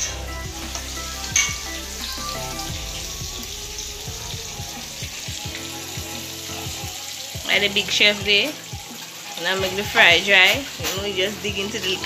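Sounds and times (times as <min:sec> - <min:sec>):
fish sizzling in hot oil: 0:00.0 - 0:12.0
reggae music: 0:00.0 - 0:12.0.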